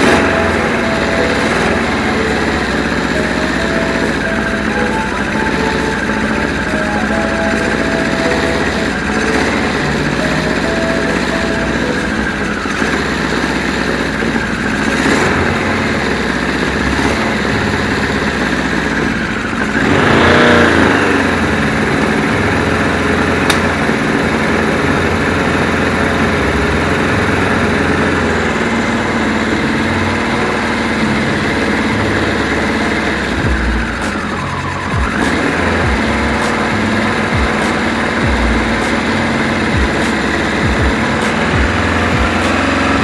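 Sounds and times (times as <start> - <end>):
motorcycle engine running and revving: 12.8 - 34.3, 34.9 - 43.0.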